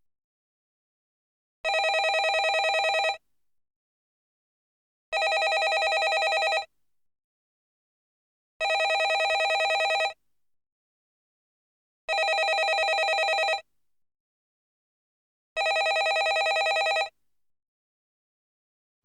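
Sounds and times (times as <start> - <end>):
landline telephone ringing: 1.7 - 3.2, 5.2 - 6.7, 8.6 - 10.2, 12.1 - 13.6, 15.6 - 17.1.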